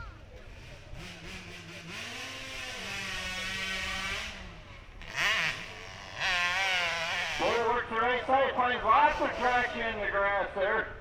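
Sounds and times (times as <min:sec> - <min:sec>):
dirt bike engine revving: 0:00.5 - 0:10.3.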